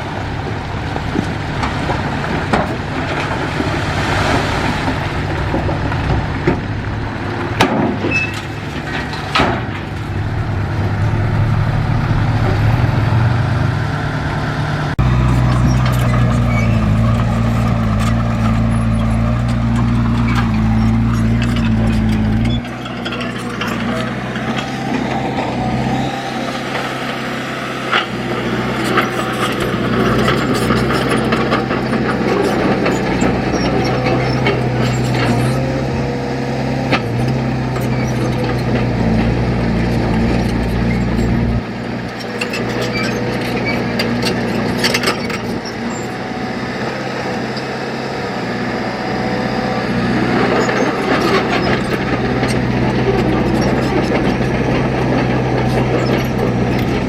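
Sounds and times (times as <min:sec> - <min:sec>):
heavy machinery diesel engine: 0:00.0 - 0:57.0
metal clanks and knocks: 0:04.4 - 0:13.0, 0:15.5 - 0:25.7.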